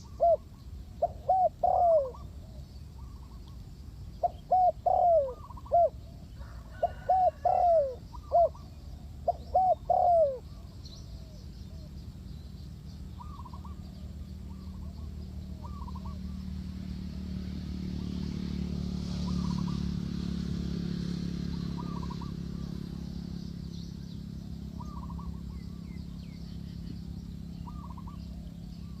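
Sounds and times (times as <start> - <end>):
doves cooing: 0.0 - 3.4, 4.2 - 11.8, 27.6 - 29.0.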